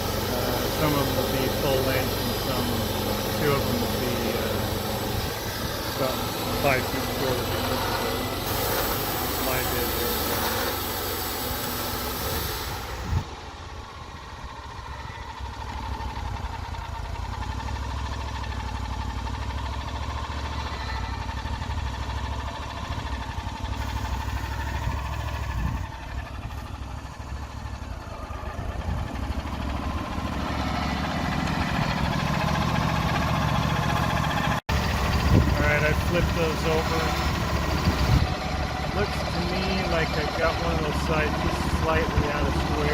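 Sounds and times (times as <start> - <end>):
high hiss: 0.0 - 13.6, 23.7 - 25.6, 35.1 - 42.9
sawmill engine running: 0.0 - 42.9.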